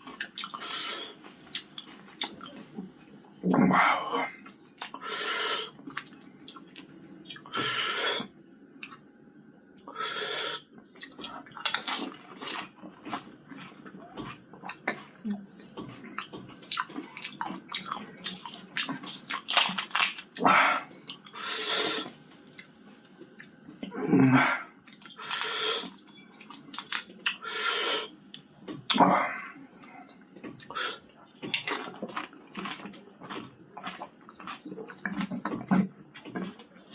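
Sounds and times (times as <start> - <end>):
crisp shells crunching when chewed: 0.0 - 3.1, 11.0 - 23.8, 24.8 - 27.4, 29.8 - 36.9.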